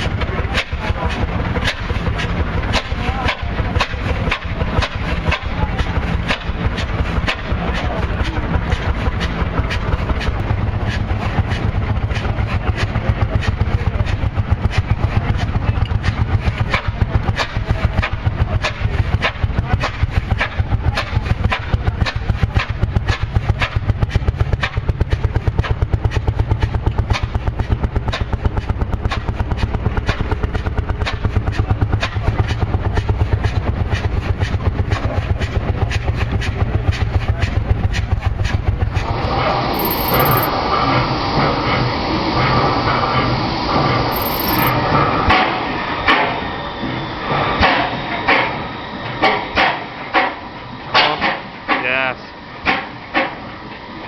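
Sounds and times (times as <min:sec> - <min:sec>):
large engine running: 0:00.0 - 0:50.6
sharp engine clack: 0:39.8 - 0:40.5, 0:44.1 - 0:44.8.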